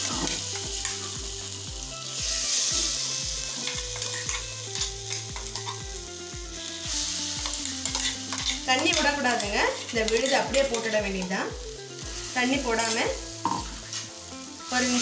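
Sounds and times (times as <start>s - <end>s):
background music beat: 0.0s - 14.7s
paste sizzling in hot oil: 0.0s - 15.0s
spatula stirring in pan: 7.0s - 11.0s.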